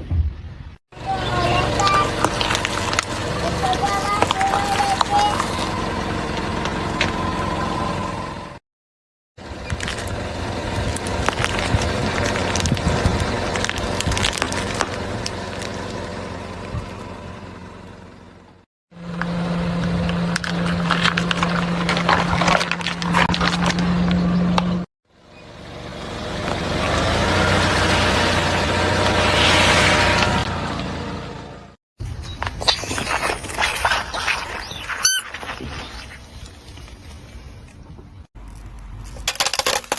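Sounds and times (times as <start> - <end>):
low engine hum: 1.0 - 8.6, 9.4 - 39.2
tyres crushing brittle objects: 2.0 - 5.7, 9.7 - 16.1, 20.1 - 24.6, 32.4 - 37.0, 38.4 - 39.9.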